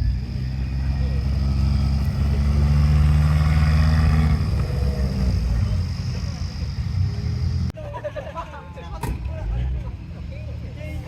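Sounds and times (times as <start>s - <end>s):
car engine running: 0.0s - 7.7s.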